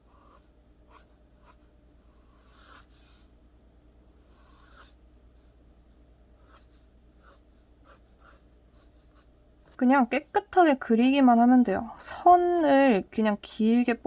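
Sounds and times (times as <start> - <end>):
pencil scratching on paper: 0.0 - 3.3, 4.1 - 5.0, 6.4 - 9.3, 10.9 - 13.1.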